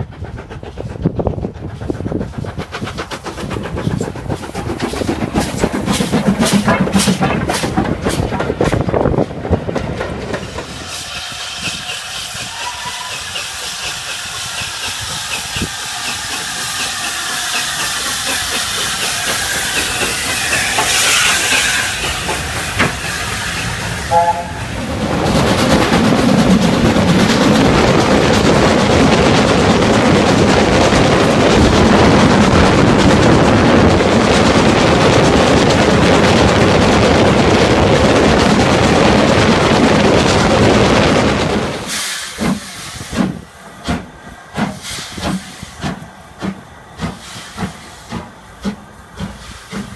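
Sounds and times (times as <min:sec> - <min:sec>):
steam locomotive running: 0:00.0 - 0:49.9
steam venting hiss: 0:10.4 - 0:27.4, 0:41.5 - 0:49.9
brief tone: 0:24.1 - 0:24.6.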